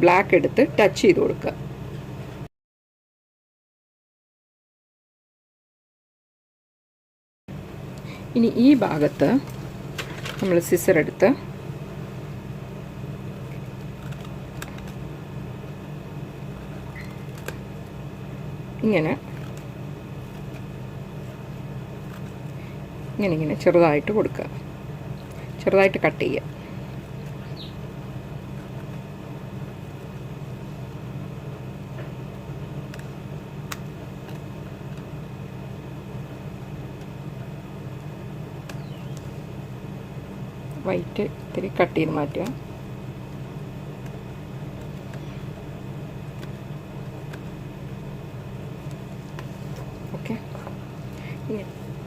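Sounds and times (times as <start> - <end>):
low background hum: 0.0 - 2.5, 7.5 - 52.0
scissors snipping paper: 13.4 - 15.0.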